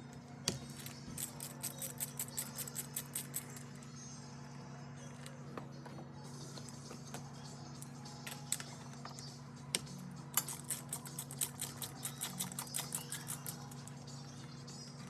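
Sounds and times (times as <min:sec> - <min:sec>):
socket ratchet clicking: 0:01.2 - 0:03.5, 0:10.3 - 0:13.8.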